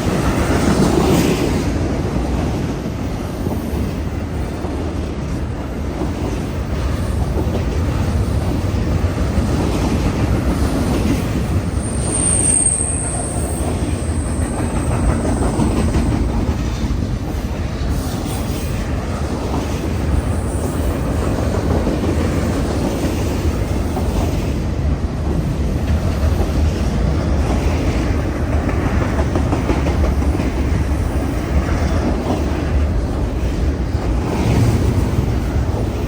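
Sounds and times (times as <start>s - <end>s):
freight train rumble and clatter: 0.0s - 36.0s
high wheel squeal: 11.7s - 16.3s.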